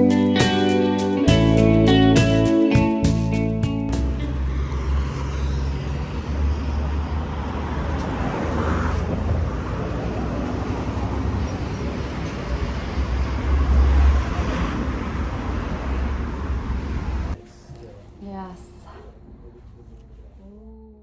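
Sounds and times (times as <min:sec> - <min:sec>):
noisy hiss: 0:00.0 - 0:04.2
vehicle engine and road rumble: 0:01.5 - 0:21.0.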